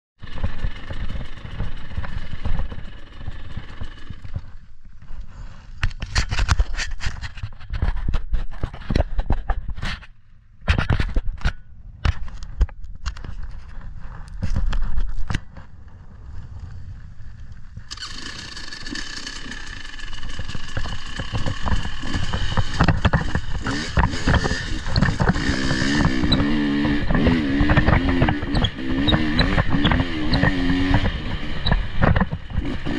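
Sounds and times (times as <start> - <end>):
off-road vehicle engine running: 0.2 - 7.3, 17.4 - 32.9.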